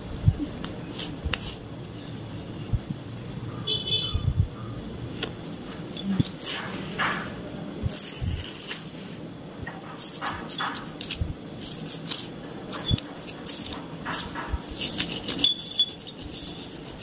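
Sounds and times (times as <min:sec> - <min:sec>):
small metal clinks and rubbing: 0:05.4 - 0:17.0.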